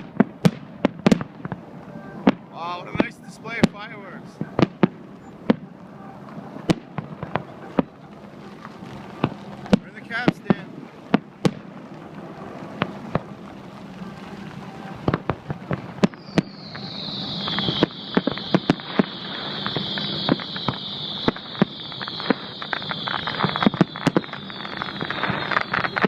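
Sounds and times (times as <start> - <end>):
fireworks bangs: 0.0 - 26.0
fireworks crackling: 0.0 - 26.0
high hissing whistle: 16.0 - 26.0.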